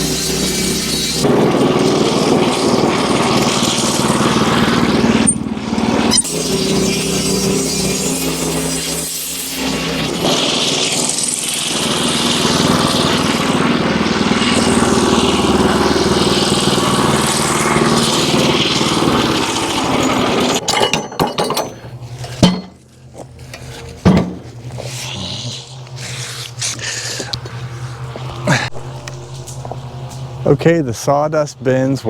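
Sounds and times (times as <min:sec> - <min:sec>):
sawmill petrol engine running: 0:00.0 - 0:32.0
clattering knocks: 0:20.1 - 0:22.8, 0:24.0 - 0:24.5.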